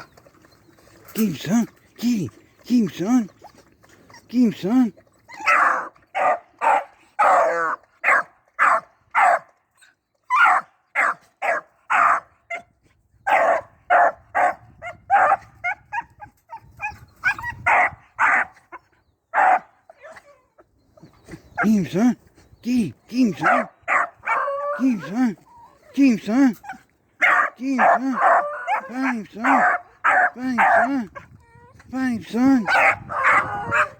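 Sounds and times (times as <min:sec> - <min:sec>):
dog barking: 0:05.4 - 0:09.5, 0:10.3 - 0:12.6, 0:13.3 - 0:15.8, 0:17.6 - 0:18.5, 0:19.3 - 0:19.7, 0:23.4 - 0:24.8, 0:26.7 - 0:30.9, 0:32.6 - 0:33.9.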